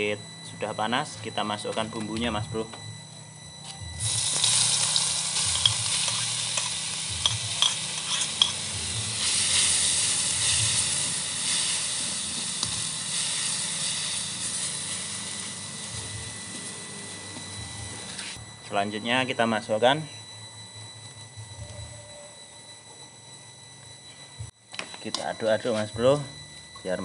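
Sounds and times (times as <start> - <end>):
paste sizzling in hot oil: 4.0 - 16.8.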